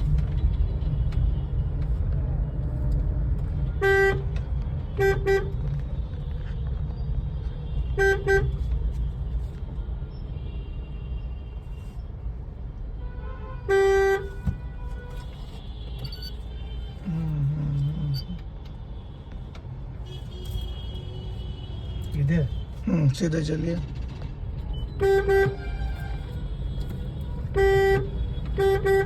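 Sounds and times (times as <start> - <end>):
car engine rumble: 0.0 - 13.0, 13.6 - 29.0
road noise: 0.0 - 29.0
car horn beeps: 3.6 - 5.6, 7.6 - 8.7, 13.0 - 18.4, 20.0 - 22.8, 24.7 - 29.0.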